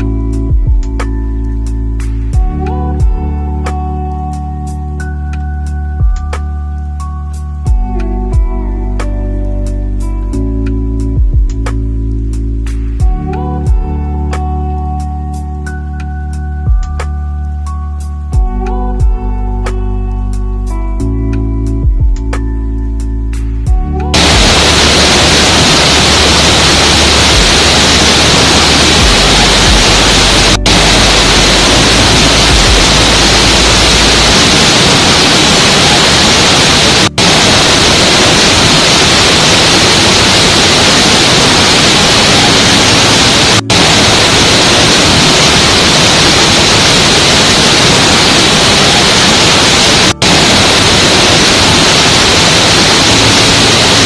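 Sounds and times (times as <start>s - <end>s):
low hum: 24.2s - 54.0s
waterfall rushing: 24.2s - 54.0s.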